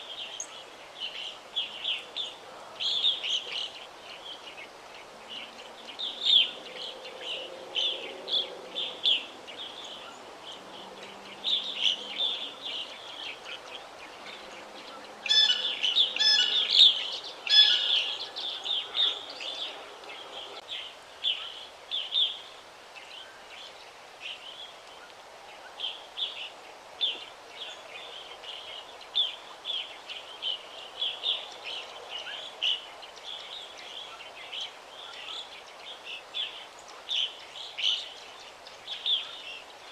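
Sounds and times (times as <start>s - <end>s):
songbirds chirping and singing: 0.4s - 20.7s.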